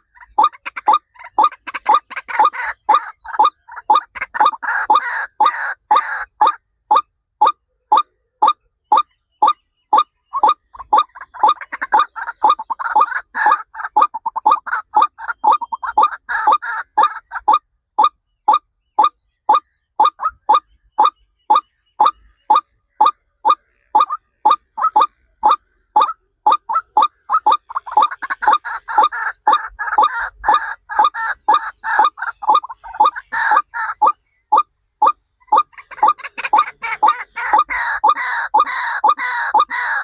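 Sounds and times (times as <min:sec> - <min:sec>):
birds calling sharply: 0:00.0 - 0:07.0.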